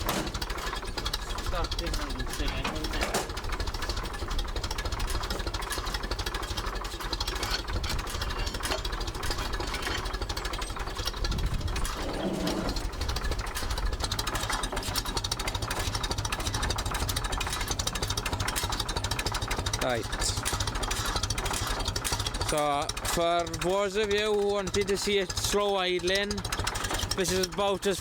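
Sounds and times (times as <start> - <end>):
tractor engine idling: 0.0 - 28.0.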